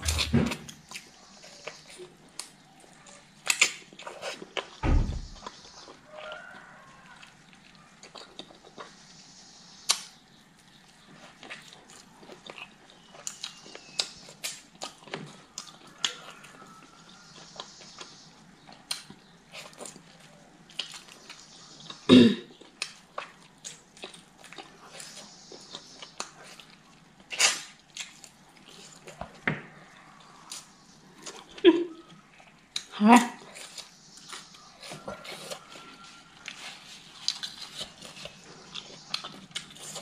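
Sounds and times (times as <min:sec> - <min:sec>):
person chewing and smacking lips: 0:00.0 - 0:09.1, 0:09.8 - 0:40.0
loud knock: 0:04.8 - 0:05.4.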